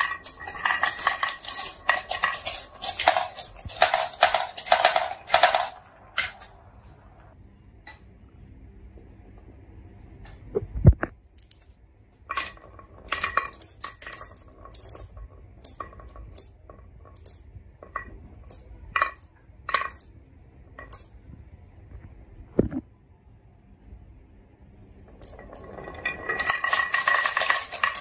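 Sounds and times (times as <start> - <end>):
marbles clattering down wooden track: 0.0 - 6.9, 12.2 - 21.1, 25.1 - 28.0.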